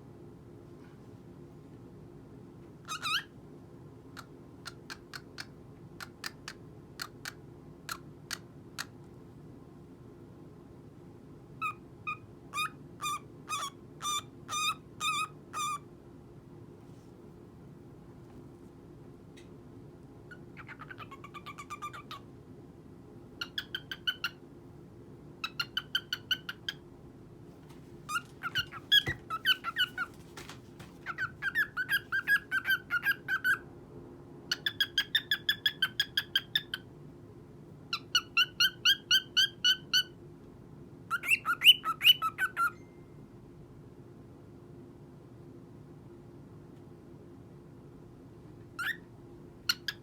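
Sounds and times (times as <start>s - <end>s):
cockatiel chirping: 2.8s - 3.3s, 11.6s - 15.8s, 20.3s - 22.2s, 23.4s - 24.4s, 25.4s - 26.8s, 28.1s - 30.2s, 31.0s - 33.6s, 34.5s - 36.8s, 37.9s - 40.1s, 41.1s - 42.8s, 48.8s - 49.1s, 49.7s - 50.0s.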